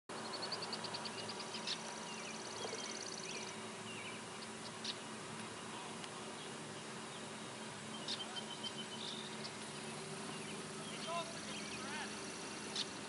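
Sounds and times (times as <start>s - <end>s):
birds chirping and trilling: 0.1s - 13.0s
distant tractor drone: 0.1s - 13.0s.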